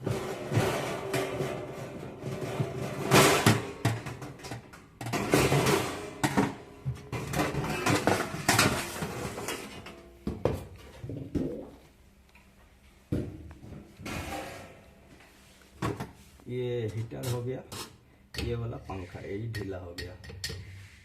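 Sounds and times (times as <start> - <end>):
sheet metal clanking and scraping: 0.0 - 10.1, 13.6 - 15.1.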